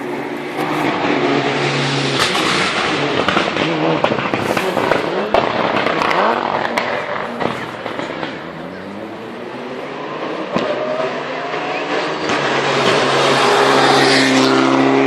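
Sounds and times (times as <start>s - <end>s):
rally car engine revving: 0.0s - 15.0s
exhaust pops and bangs: 2.1s - 8.9s.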